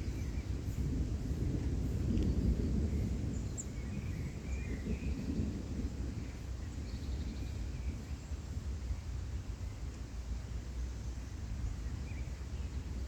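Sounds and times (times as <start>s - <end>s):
distant rolling thunder: 0.5s - 6.5s.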